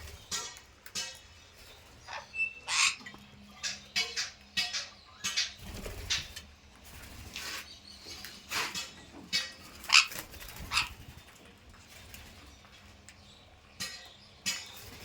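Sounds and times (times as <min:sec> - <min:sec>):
parrot squawking: 0:02.0 - 0:04.4, 0:09.8 - 0:11.0.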